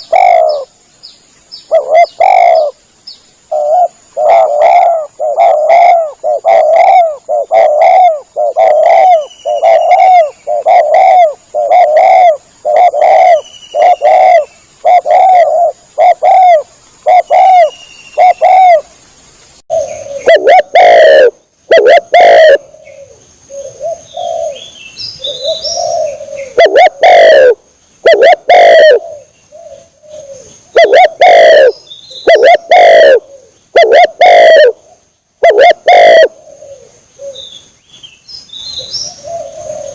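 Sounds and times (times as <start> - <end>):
dove cooing: 0.0 - 0.7, 1.7 - 2.8, 3.5 - 18.9, 19.7 - 37.5, 38.8 - 39.9
faint small bird chirps: 9.1 - 10.6.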